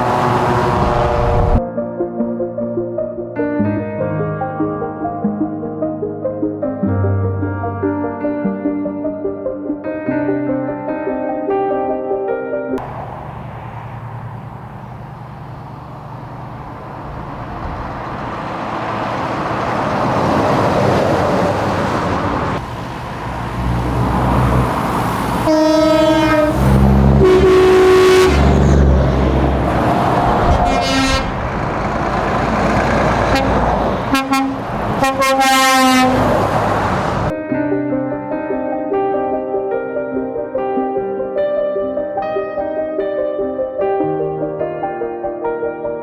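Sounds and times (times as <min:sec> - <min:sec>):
heavy trucks passing: 0:00.0 - 0:01.6, 0:12.8 - 0:37.3
multi-tone air horns: 0:00.0 - 0:01.6, 0:25.4 - 0:28.8, 0:30.5 - 0:31.4, 0:33.3 - 0:36.4.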